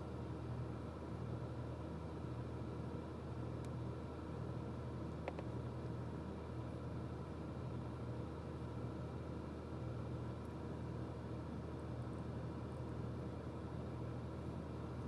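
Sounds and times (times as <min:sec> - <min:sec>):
low background hum: 0:00.0 - 0:15.0
faint small click: 0:05.2 - 0:05.5.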